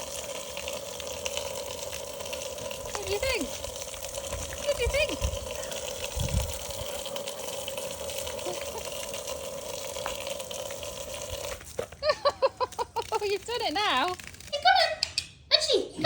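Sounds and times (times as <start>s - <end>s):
hose water spraying: 0.0s - 14.7s
person speaking: 2.8s - 3.8s, 4.5s - 6.1s, 13.0s - 16.0s.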